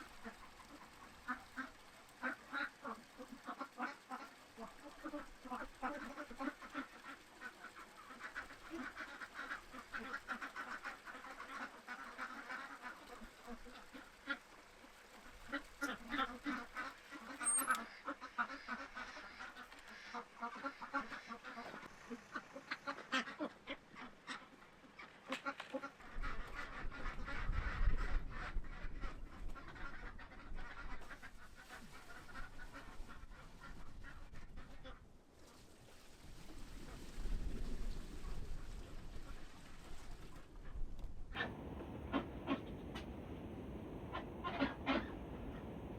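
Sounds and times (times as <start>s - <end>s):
ducks quacking: 0.0s - 35.0s, 41.4s - 45.9s
wind rumble on microphone: 26.2s - 31.0s, 36.3s - 45.9s.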